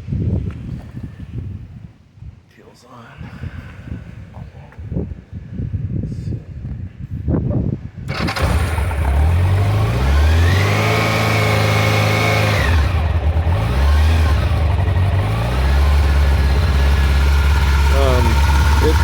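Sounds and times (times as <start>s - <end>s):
motorcycle engine starting and revving: 8.1s - 19.0s.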